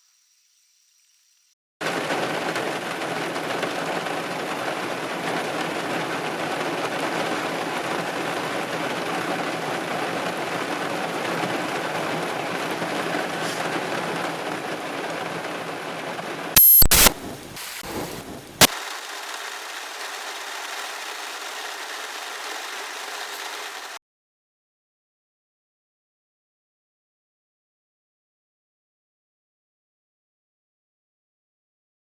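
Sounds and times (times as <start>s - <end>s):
heavy rain falling: 1.8s - 16.5s, 17.1s - 24.0s.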